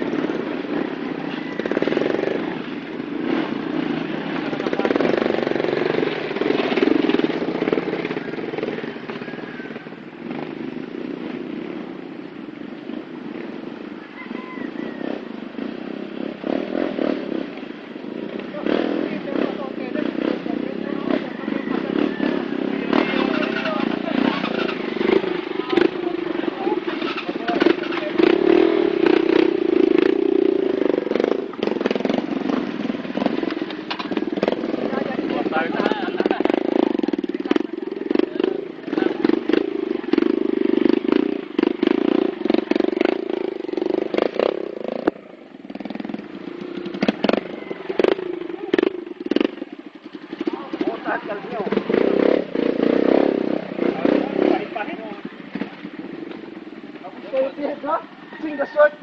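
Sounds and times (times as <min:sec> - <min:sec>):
motorcycle engine running: 0:00.0 - 0:59.0
people talking: 0:04.3 - 0:05.4, 0:18.4 - 0:29.5, 0:33.2 - 0:40.4, 0:47.2 - 0:49.5, 0:50.4 - 0:55.9, 0:56.9 - 0:59.0.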